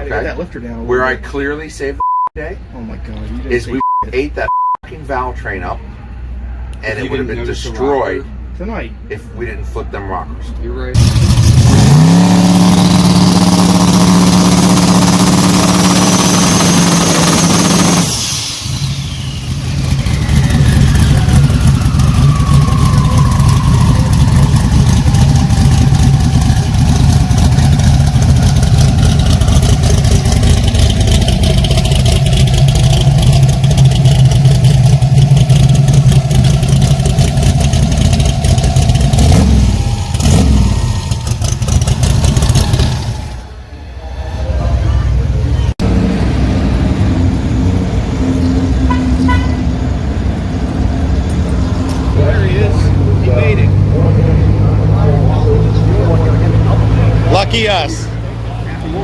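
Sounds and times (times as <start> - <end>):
race car engine revving: 11.0 - 59.0
falling whistle: 16.0 - 26.4, 39.3 - 41.5.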